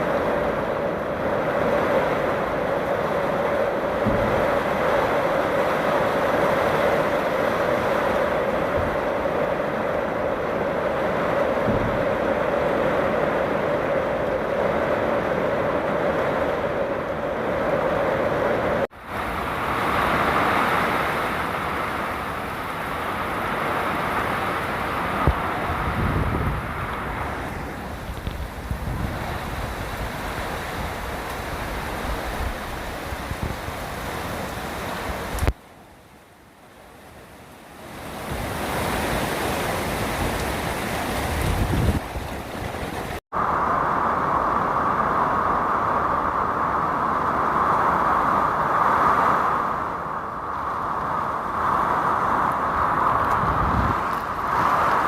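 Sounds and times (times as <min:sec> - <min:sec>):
heavy rain: 0:00.0 - 0:55.0
wind rushing: 0:24.9 - 0:35.5, 0:38.1 - 0:55.0.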